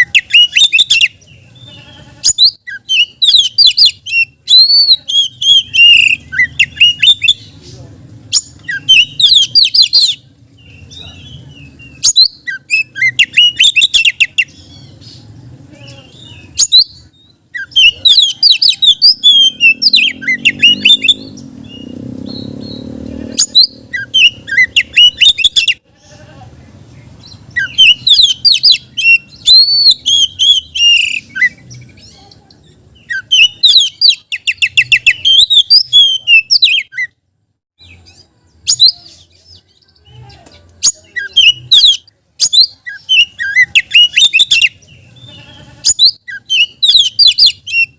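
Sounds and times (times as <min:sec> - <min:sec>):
bird singing whistles: 0:02.4 - 0:07.4, 0:08.4 - 0:10.2, 0:11.9 - 0:14.5, 0:27.6 - 0:31.6, 0:33.0 - 0:37.1, 0:45.9 - 0:47.9.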